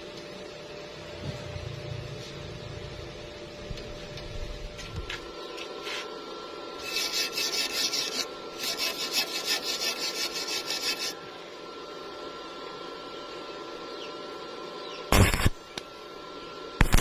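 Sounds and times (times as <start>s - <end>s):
hand tool scraping workpiece: 6.8s - 11.2s.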